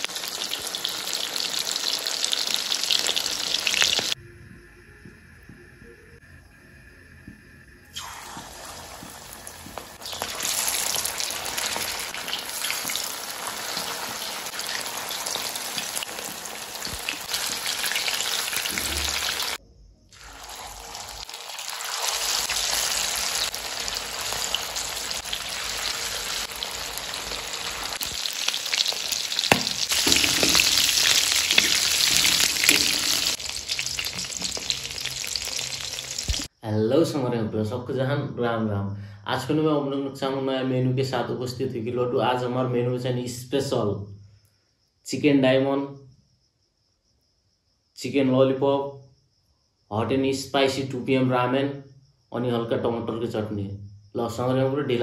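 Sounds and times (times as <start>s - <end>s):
chicken deep-frying in oil: 0.0s - 4.2s, 8.0s - 19.6s, 20.2s - 36.5s.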